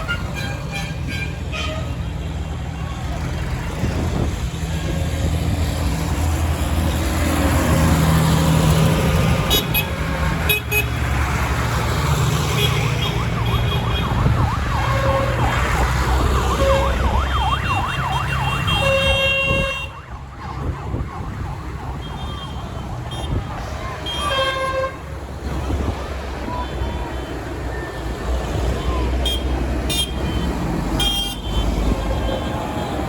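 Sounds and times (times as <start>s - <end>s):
diesel tractor engines running: 0.0s - 33.0s
siren yelping: 12.8s - 22.8s.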